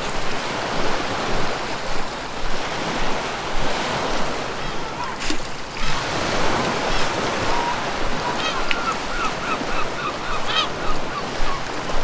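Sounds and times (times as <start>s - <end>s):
surf washing on a beach: 0.0s - 12.0s
gulls calling: 3.8s - 12.0s.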